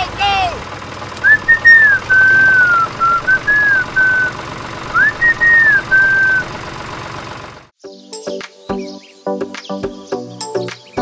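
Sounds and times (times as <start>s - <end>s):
whistled tune: 1.2s - 6.6s.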